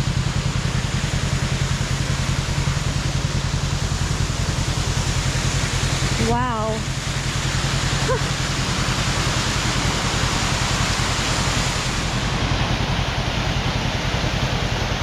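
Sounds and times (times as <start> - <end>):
low engine hum: 0.0 - 15.0
waterfall roaring: 0.0 - 15.0.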